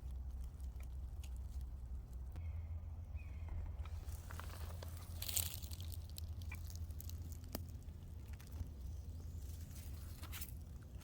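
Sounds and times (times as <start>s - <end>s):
steady low rumble: 0.0s - 11.0s
footsteps crunching dry debris: 3.9s - 8.5s.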